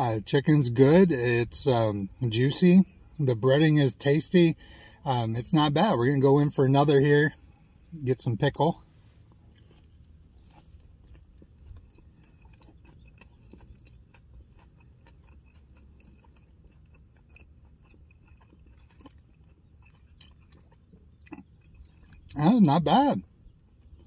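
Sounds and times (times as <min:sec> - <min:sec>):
low steady hum: 0:00.0 - 0:24.0
faint chewing: 0:07.3 - 0:08.0, 0:08.7 - 0:24.0
small mouth clicks: 0:09.3 - 0:22.4.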